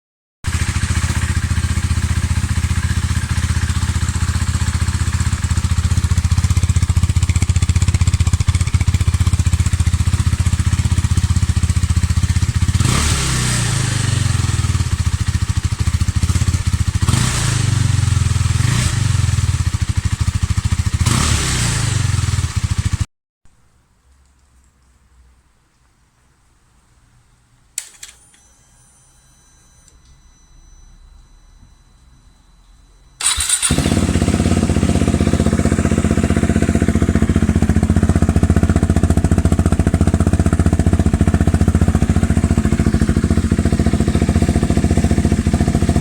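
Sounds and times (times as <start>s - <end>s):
motorcycle engine idling and revving: 0.5s - 23.1s, 33.2s - 46.0s.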